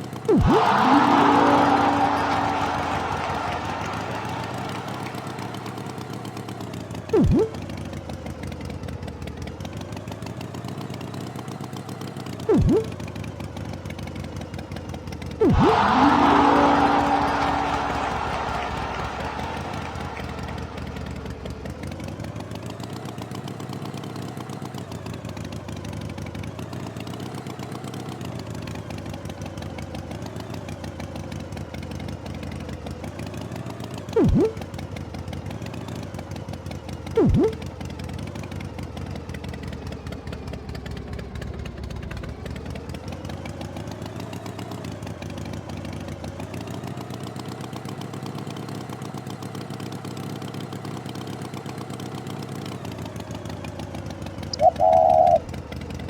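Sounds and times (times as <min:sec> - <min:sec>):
tone sliding down in pitch: 0:00.3 - 0:05.9, 0:07.2 - 0:07.6, 0:12.5 - 0:13.0, 0:15.4 - 0:19.6, 0:34.2 - 0:34.6, 0:37.2 - 0:37.6, 0:54.6 - 0:55.4.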